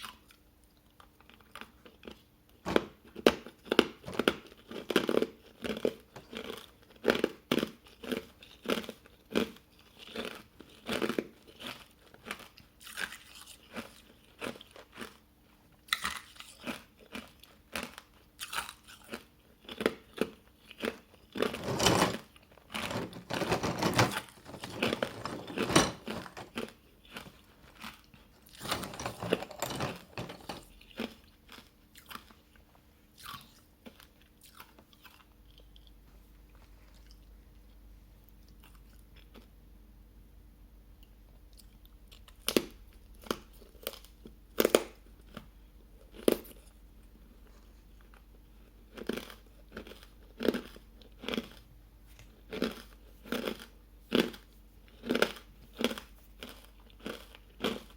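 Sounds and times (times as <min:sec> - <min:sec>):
ice being chewed crunching: 0:15.9 - 0:21.6, 0:48.7 - 0:57.9.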